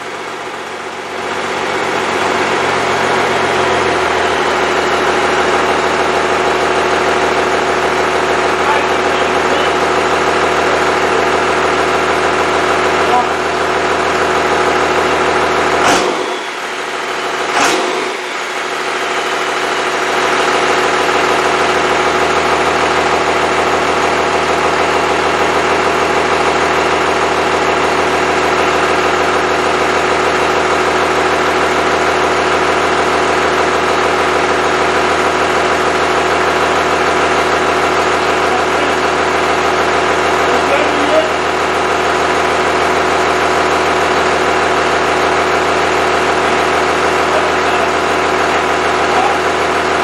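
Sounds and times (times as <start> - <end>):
diesel engine idling: 0.0 - 50.0
sharp knocks: 15.8 - 16.4, 17.5 - 18.2.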